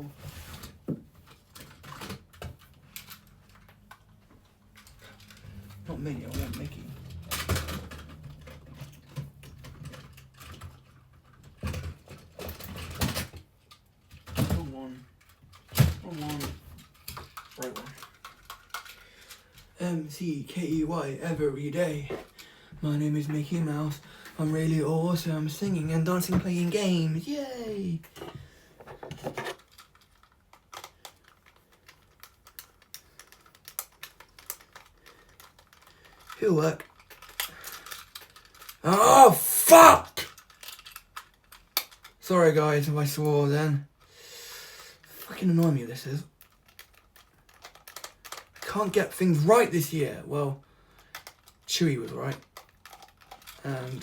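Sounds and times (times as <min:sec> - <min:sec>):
plastic toys clicking and knocking: 0:00.9 - 0:05.5, 0:06.2 - 0:19.8, 0:28.1 - 0:38.8, 0:39.5 - 0:42.2, 0:44.8 - 0:49.9, 0:50.7 - 0:54.0
brief voice: 0:38.8 - 0:40.2.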